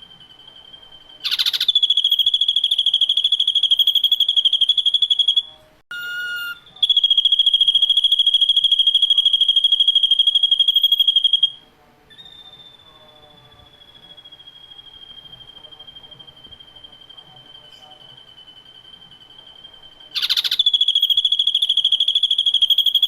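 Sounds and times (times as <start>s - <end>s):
bird trilling: 0.6s - 18.0s, 19.6s - 23.0s.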